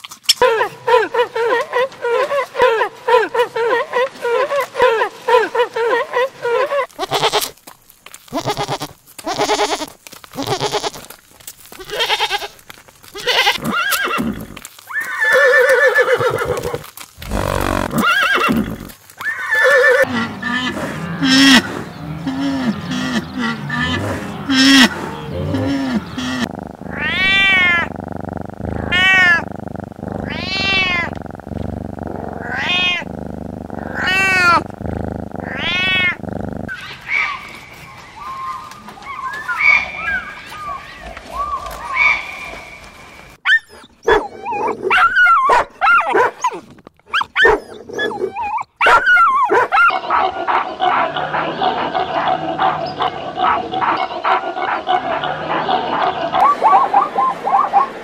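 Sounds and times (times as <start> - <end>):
goats bleating: 6.8 - 7.6, 8.3 - 11.1, 11.7 - 14.5, 15.1 - 31.5, 33.7 - 36.2
animal grunting calls: 15.8 - 37.0, 50.0 - 58.0
cat meowing: 26.2 - 29.5, 30.2 - 31.4, 32.4 - 34.7, 35.4 - 36.2.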